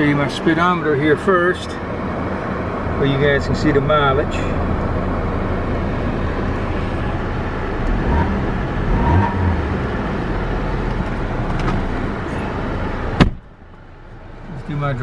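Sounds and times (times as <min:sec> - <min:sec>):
car engine running: 0:00.0 - 0:15.0
car door shutting: 0:13.1 - 0:13.5.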